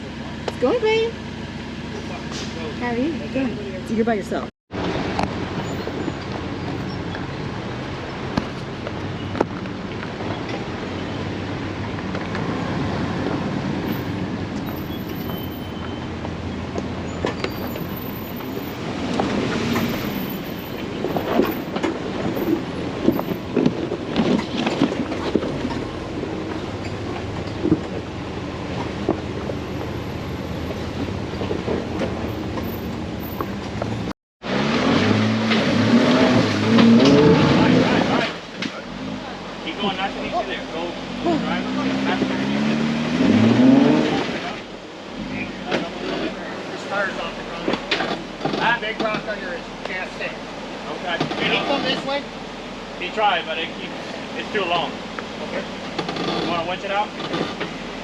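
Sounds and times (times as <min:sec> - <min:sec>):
tires and body rattling: 0:00.0 - 0:58.0
car engine running slowly: 0:13.2 - 0:34.1.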